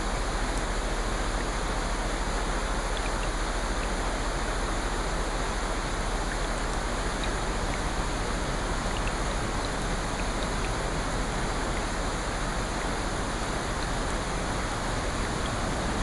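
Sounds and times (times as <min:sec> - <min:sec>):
steady rain hiss: 0:00.0 - 0:16.0
raindrop ticks: 0:02.9 - 0:04.2, 0:05.8 - 0:16.0.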